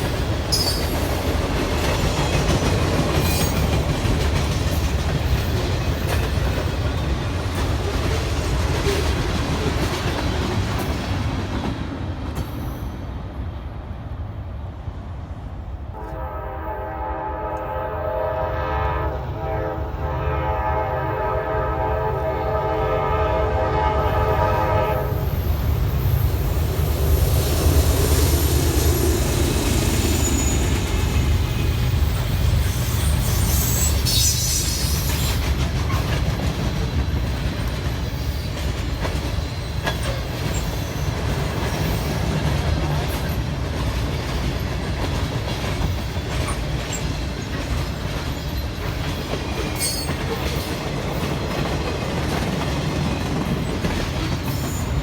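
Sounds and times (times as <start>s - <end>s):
wheels clattering on rail: 0.0s - 12.8s, 25.3s - 55.0s
train rumbling past: 0.0s - 55.0s
locomotive air horn: 15.9s - 25.4s
high wheel squeals: 25.3s - 35.4s.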